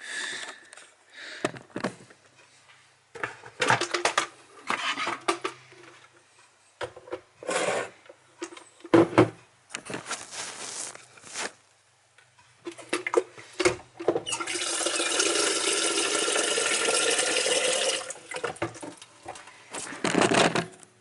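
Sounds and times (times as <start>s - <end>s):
scraping and rustling: 9.8s - 11.7s.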